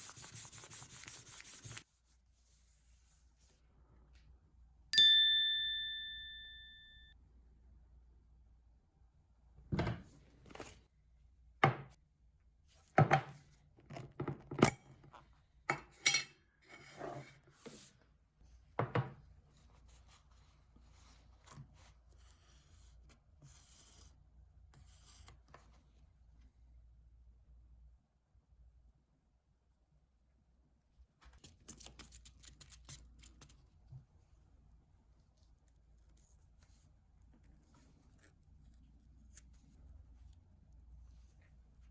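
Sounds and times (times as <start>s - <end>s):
objects knocking and tapping: 18.8s - 19.2s.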